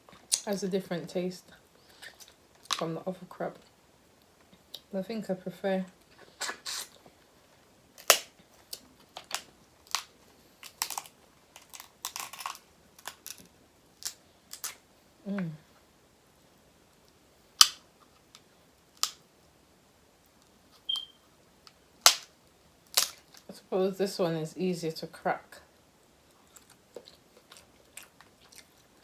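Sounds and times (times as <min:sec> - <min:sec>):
crab shell cracking: 0:08.0 - 0:14.8, 0:17.6 - 0:18.4, 0:19.0 - 0:19.2, 0:22.0 - 0:23.5.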